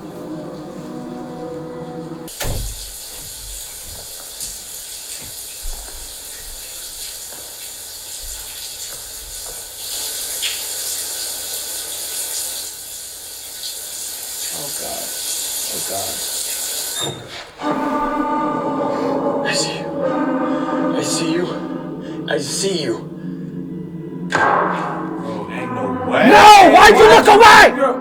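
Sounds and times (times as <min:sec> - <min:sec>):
moving train rushing hiss: 0:00.0 - 0:08.9, 0:14.5 - 0:23.7
thump: 0:02.4 - 0:03.4.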